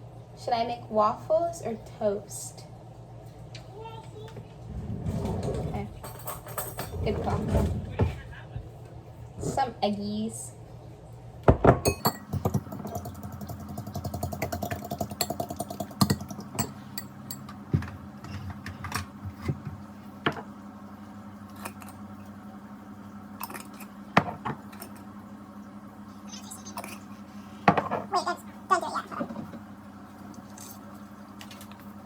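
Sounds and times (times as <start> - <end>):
steady low hum: 0.0 - 32.0
dishes and utensils clinking: 5.3 - 7.4, 11.7 - 13.1
eggs beaten in a bowl: 11.9 - 17.4.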